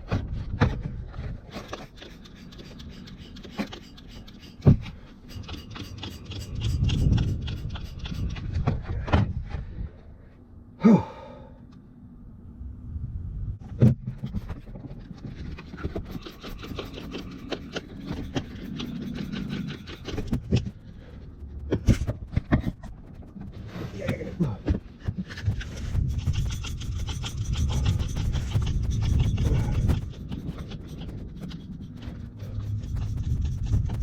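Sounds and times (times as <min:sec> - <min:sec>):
scraping handling noises: 0:00.7 - 0:09.2
rapid ticks: 0:01.8 - 0:08.5, 0:15.3 - 0:23.8, 0:25.1 - 0:34.0.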